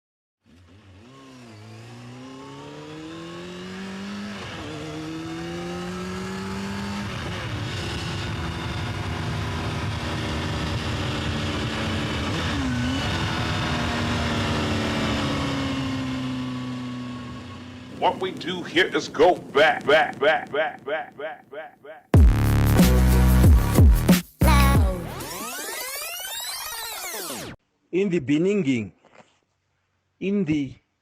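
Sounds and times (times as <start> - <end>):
vehicle engine accelerating through gears: 0.4 - 18.0.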